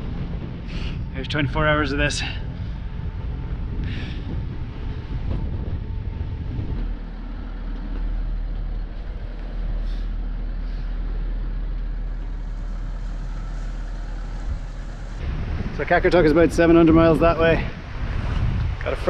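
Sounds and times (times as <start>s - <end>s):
low rumble aboard yacht: 0.0s - 19.0s.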